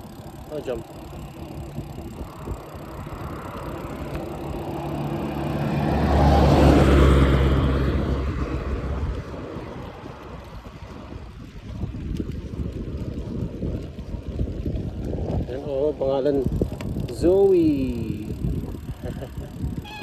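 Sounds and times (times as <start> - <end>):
vehicle passing by: 0.0 - 11.1.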